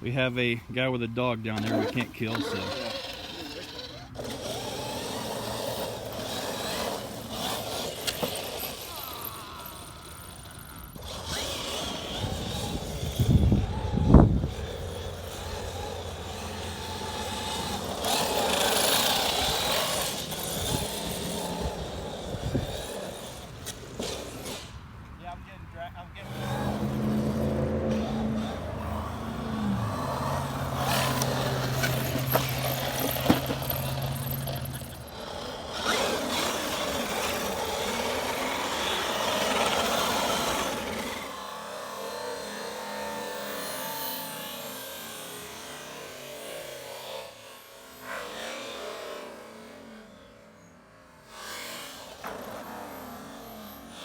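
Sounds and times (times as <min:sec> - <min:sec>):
electric rc truck motor running: 0:01.2 - 0:54.0
rush of motor and tyres: 0:01.5 - 0:41.7
tyre noise: 0:26.2 - 0:41.2.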